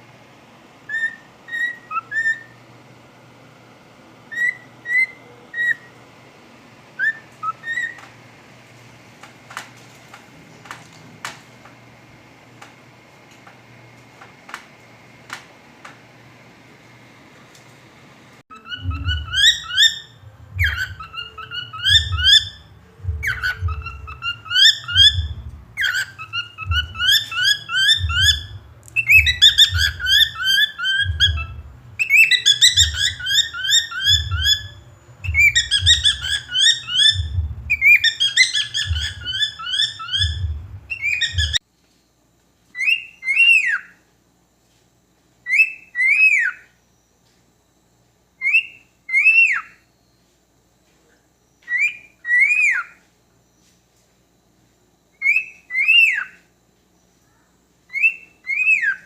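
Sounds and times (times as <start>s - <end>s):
cockatiel whistling: 0.9s - 2.6s, 4.3s - 5.9s, 7.0s - 8.1s, 18.5s - 41.6s, 42.8s - 44.0s, 45.4s - 46.7s, 48.4s - 49.8s, 51.6s - 53.0s, 55.2s - 56.4s, 57.9s - 59.0s
low rumble: 18.7s - 33.3s, 34.1s - 41.6s.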